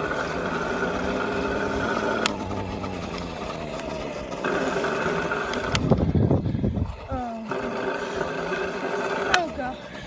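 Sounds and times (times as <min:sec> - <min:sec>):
gear click: 0:00.0 - 0:06.2
dirt bike motor running: 0:00.0 - 0:10.0.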